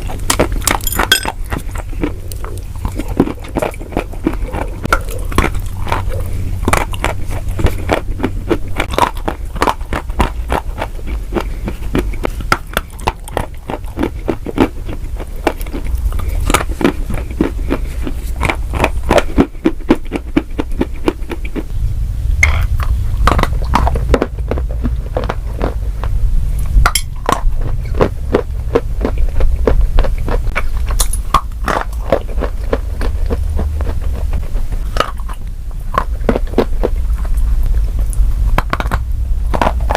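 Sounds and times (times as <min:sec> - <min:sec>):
crunchy food chewing: 0:00.0 - 0:21.7, 0:22.5 - 0:39.9
low rumble: 0:20.2 - 0:39.9.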